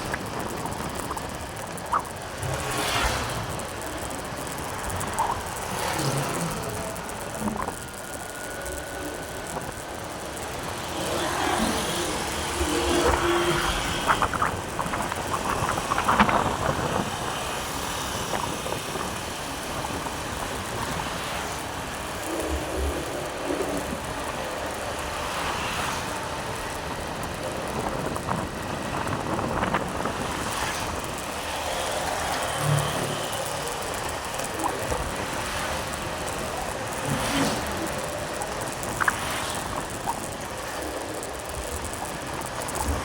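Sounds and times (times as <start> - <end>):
wind on microphone: 0.0 - 8.2, 11.1 - 24.8, 26.0 - 31.7
motorcycle road noise: 0.0 - 43.0.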